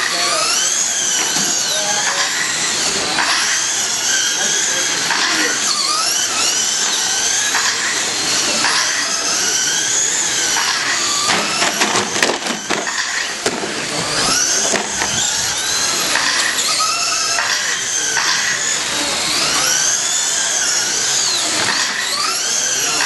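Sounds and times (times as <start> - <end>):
radio-controlled trucks motors whining: 0.0 - 23.0.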